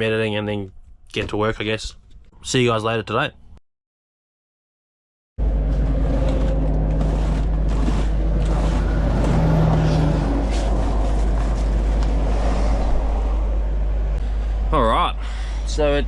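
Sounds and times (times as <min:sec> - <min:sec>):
vehicle traffic passing: 0:05.4 - 0:16.0.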